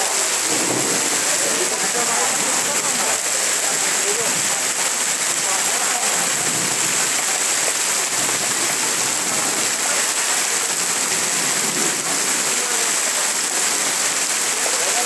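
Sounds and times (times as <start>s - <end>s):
heavy rain downpour: 0.0s - 15.0s.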